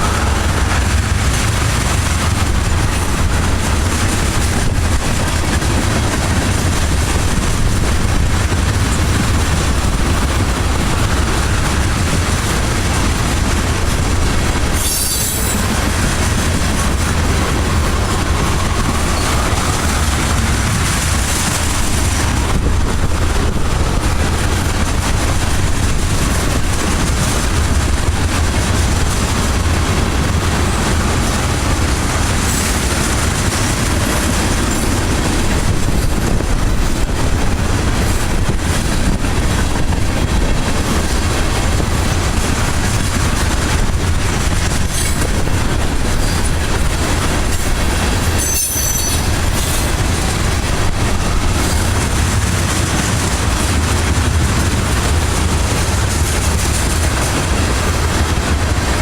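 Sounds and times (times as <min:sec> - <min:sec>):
train wheels rumbling on rails: 0:00.0 - 0:59.0
high wheel squeal: 0:14.8 - 0:15.7, 0:48.3 - 0:49.9.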